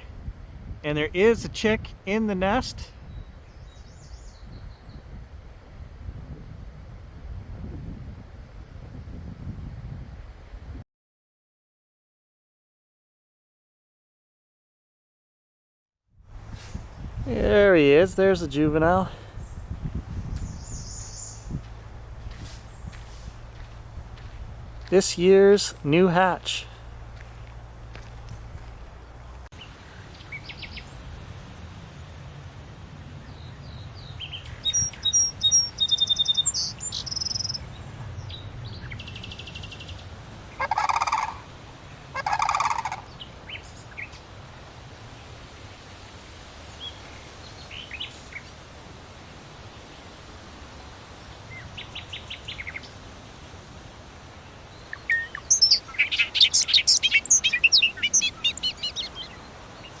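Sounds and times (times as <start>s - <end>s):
eagles calling: 16.4s - 29.5s, 34.5s - 38.0s, 54.6s - 59.3s.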